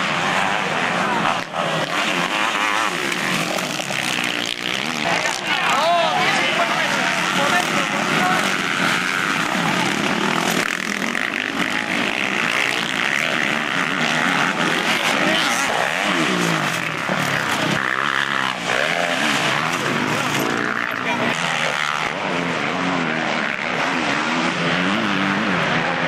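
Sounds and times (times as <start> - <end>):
motocross bike engines revving: 0.0 - 26.0.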